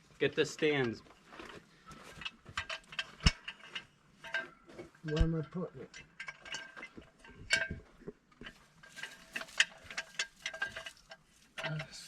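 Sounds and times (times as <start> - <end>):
metal jack stand clinking: 2.1 - 7.8, 8.4 - 12.0.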